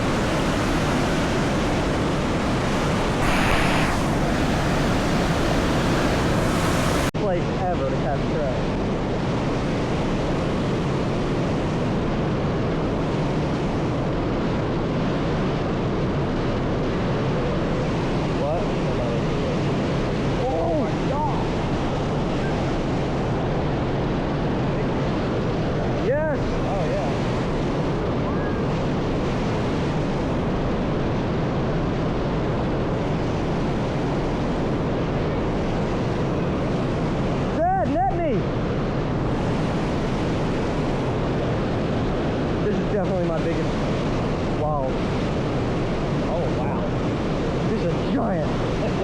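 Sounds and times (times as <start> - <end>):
stream rushing: 0.0 - 7.2, 38.2 - 49.0.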